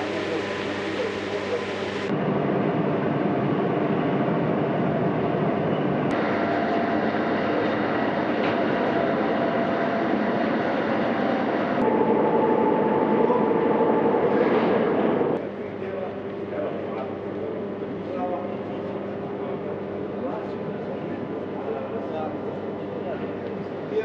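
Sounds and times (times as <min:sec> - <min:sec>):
train rumbling: 0:02.2 - 0:15.4.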